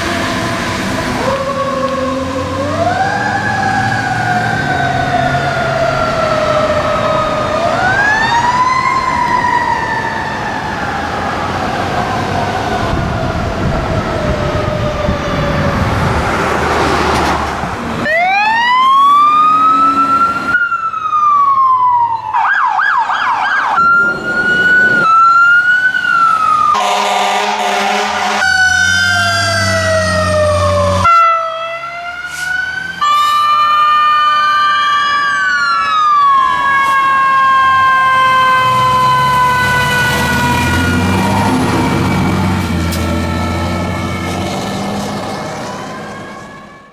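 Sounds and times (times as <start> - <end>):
rapid siren yelp: 0.0 - 16.2, 18.0 - 46.9
electronic siren wails: 0.0 - 16.3, 18.0 - 46.9
truck rumble: 0.0 - 22.1, 22.8 - 46.9
horn blasts: 26.8 - 29.2.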